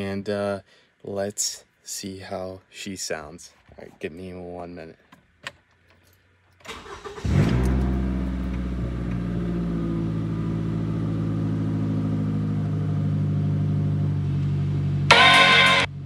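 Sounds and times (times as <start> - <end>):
car engine starting and idling: 6.6 - 16.0.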